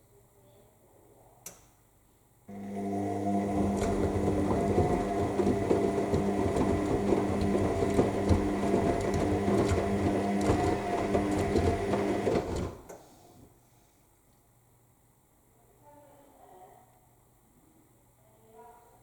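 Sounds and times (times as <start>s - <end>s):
washing machine motor hum: 2.5s - 12.9s
laundry tumbling in drum: 3.3s - 12.8s.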